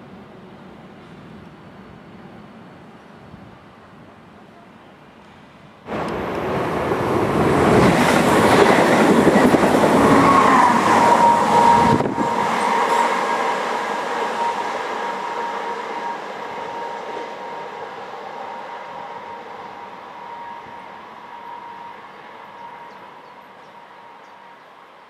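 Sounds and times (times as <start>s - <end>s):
train wheels rumbling on rails: 5.2s - 24.9s.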